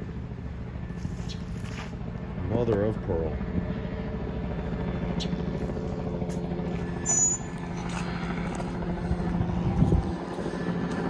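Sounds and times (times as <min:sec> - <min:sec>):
large engine droning: 0:00.0 - 0:11.0
short high chirp: 0:07.0 - 0:07.5.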